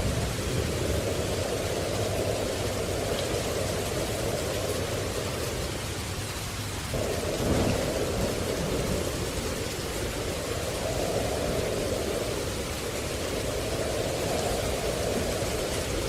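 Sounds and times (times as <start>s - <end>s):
rain hissing: 0.0s - 16.0s
low rumble: 6.9s - 16.0s.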